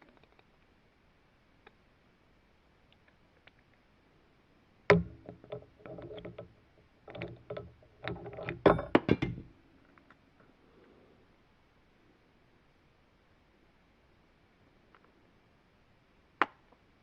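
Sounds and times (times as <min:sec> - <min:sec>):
metal parts knocking and rattling: 0:04.9 - 0:09.6.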